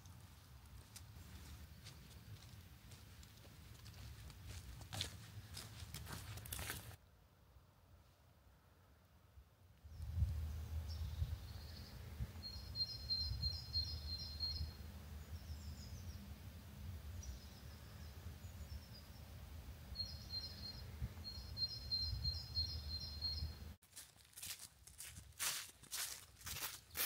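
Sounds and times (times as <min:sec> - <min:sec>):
songbird chirping: 0:00.0 - 0:07.2, 0:09.8 - 0:23.8.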